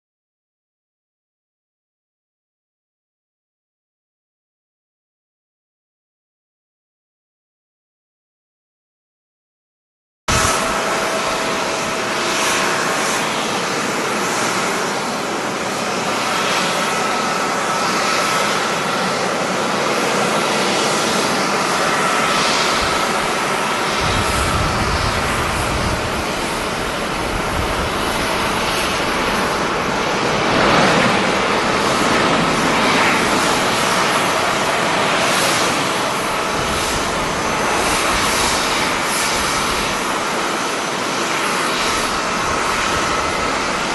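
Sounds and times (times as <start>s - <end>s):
jet engines hissing: 10.3s - 43.9s.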